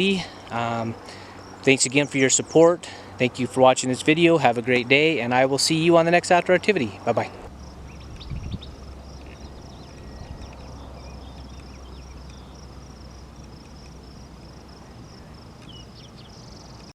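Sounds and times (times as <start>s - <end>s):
insects trilling: 0.0s - 16.9s
low steady rumble: 2.3s - 16.9s
bird-like chirps: 7.4s - 16.9s.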